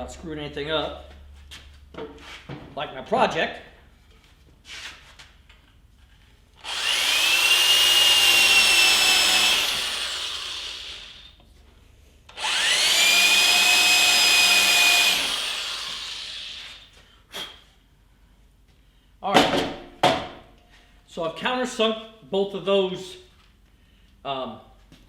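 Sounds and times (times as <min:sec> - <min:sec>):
drill press motor whining: 0:06.6 - 0:11.3, 0:12.3 - 0:16.8.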